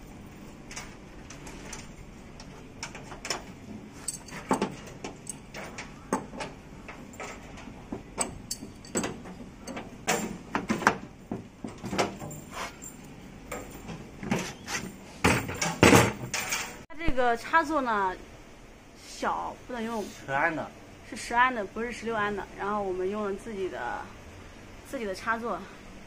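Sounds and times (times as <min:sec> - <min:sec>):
tools clicking and knocking: 0:00.6 - 0:14.3.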